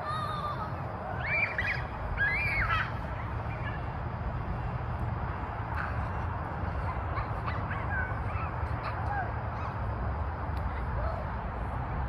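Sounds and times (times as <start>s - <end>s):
steady low rumble: 0.0s - 12.0s
high chirping calls: 1.2s - 3.9s.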